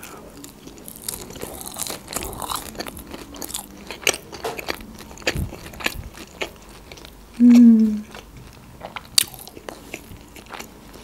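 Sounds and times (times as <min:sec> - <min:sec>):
chewing with small crunches: 0:00.0 - 0:11.0.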